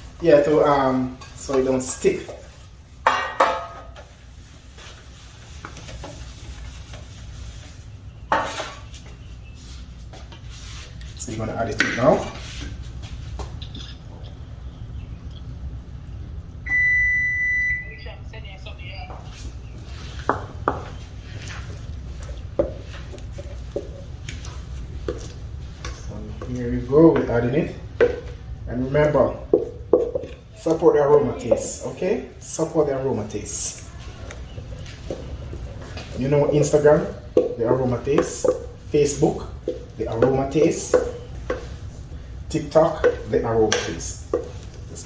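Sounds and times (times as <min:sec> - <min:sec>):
low steady hum: 0:00.0 - 0:45.0
kitchenware clattering: 0:00.2 - 0:04.1, 0:11.7 - 0:12.4, 0:33.7 - 0:42.0, 0:42.6 - 0:45.0
kitchenware scraping and clinking: 0:00.2 - 0:04.1, 0:08.3 - 0:09.0, 0:11.7 - 0:12.8, 0:42.6 - 0:45.0
utensils and dishes knocking: 0:03.1 - 0:04.0, 0:39.6 - 0:41.8.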